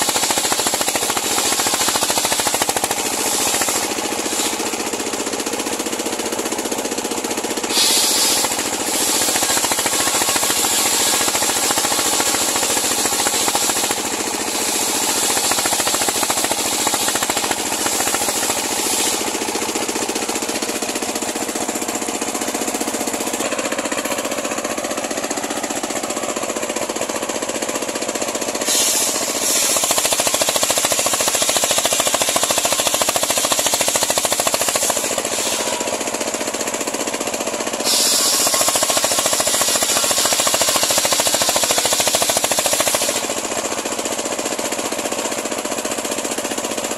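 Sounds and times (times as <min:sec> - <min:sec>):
circular saw ripping through log: 0:00.0 - 0:05.0, 0:07.6 - 0:23.4, 0:28.5 - 0:36.0, 0:37.8 - 0:43.4.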